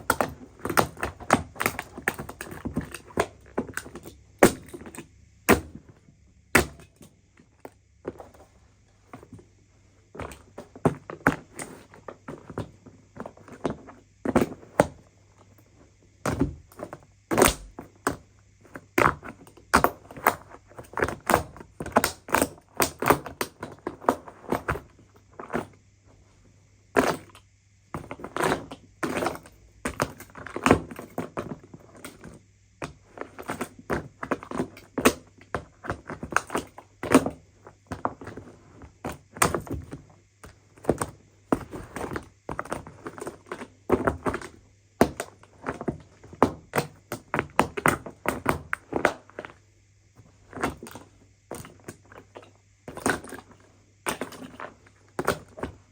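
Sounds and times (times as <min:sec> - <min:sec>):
plastic casing knocks and cracks: 0:00.0 - 0:06.0, 0:06.6 - 0:07.5.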